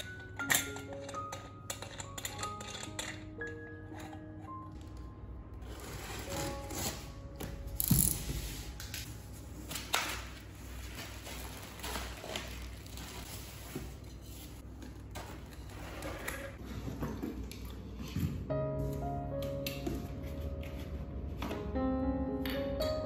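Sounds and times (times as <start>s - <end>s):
cardboard and foam rustling: 5.6s - 7.2s, 8.2s - 17.0s.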